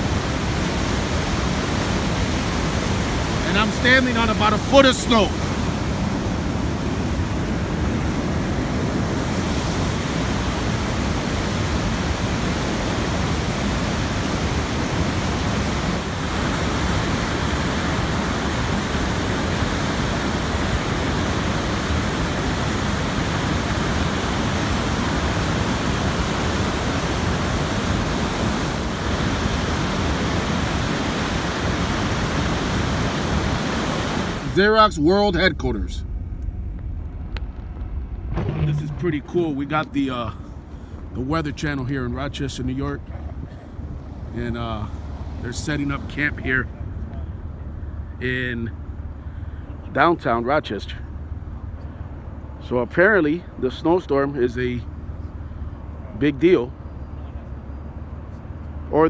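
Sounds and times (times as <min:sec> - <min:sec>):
steady low rushing noise: 0:33.9 - 0:49.7.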